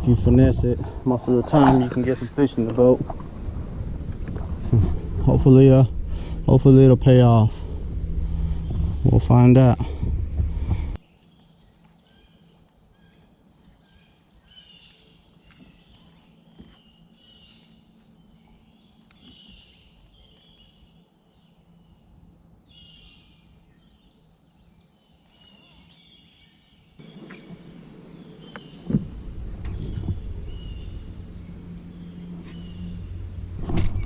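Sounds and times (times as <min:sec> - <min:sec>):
even rushing noise: 0:00.0 - 0:11.0, 0:27.0 - 0:34.0
faint low hum: 0:00.0 - 0:22.8, 0:27.0 - 0:34.0
insect calls: 0:00.0 - 0:34.0
bird chirps: 0:25.2 - 0:33.2.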